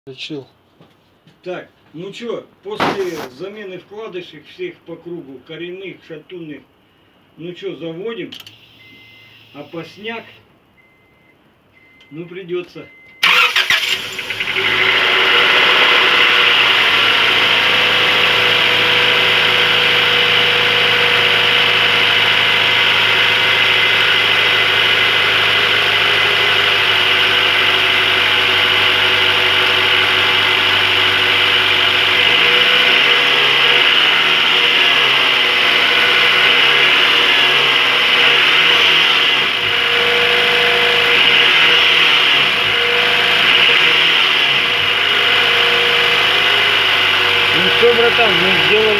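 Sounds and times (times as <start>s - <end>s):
car engine idling: 13.2s - 48.9s
engine revving: 13.2s - 48.9s.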